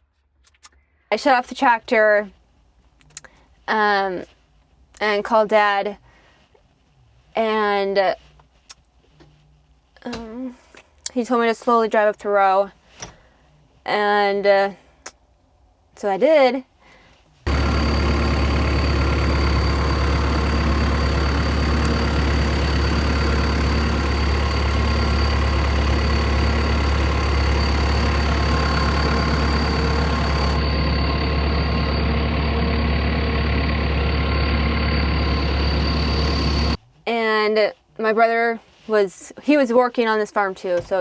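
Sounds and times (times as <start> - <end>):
thin high whine: 17.5 - 36.8
tractor engine running: 17.5 - 36.8.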